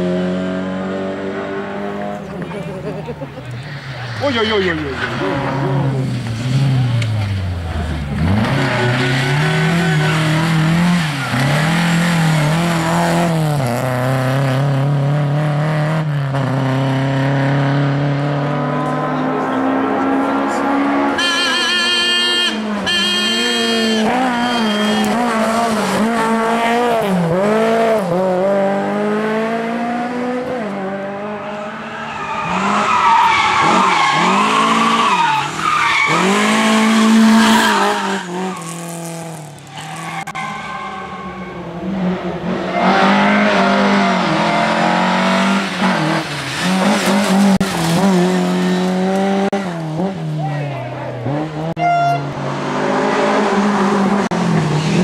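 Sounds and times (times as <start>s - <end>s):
rally car engine revving: 0.0s - 55.0s
tyres squealing and skidding: 3.2s - 13.5s, 19.1s - 27.8s, 31.4s - 48.6s.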